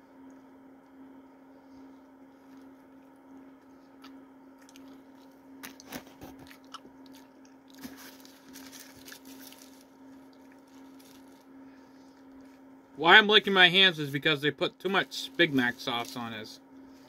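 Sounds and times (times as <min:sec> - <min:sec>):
steady low hum: 0:00.0 - 0:17.0
wet chewing: 0:02.4 - 0:11.2.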